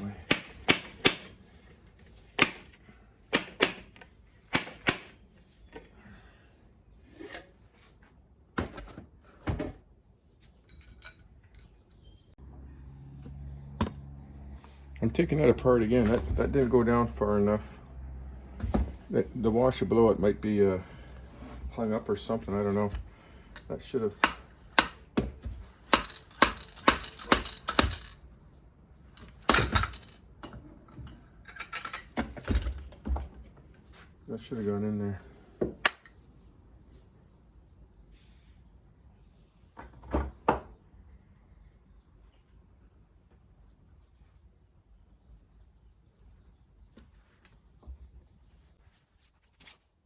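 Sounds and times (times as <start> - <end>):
metal parts knocking and clinking: 10.6 - 12.0, 25.9 - 28.3, 29.1 - 33.9, 35.8 - 36.2.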